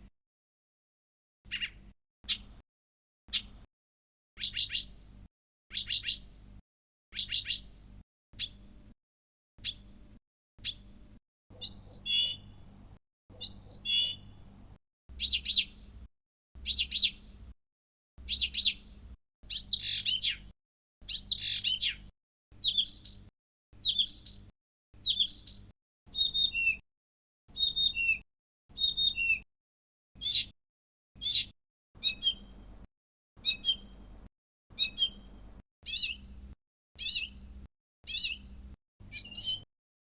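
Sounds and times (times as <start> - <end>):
warbler song phrases: 1.5 - 2.6, 4.4 - 5.0, 5.7 - 6.3, 7.1 - 7.8, 11.5 - 12.7, 13.3 - 14.5, 15.1 - 15.9, 16.6 - 17.5, 18.2 - 26.8, 31.2 - 32.7, 34.8 - 36.3, 37.0 - 37.4, 38.0 - 39.7.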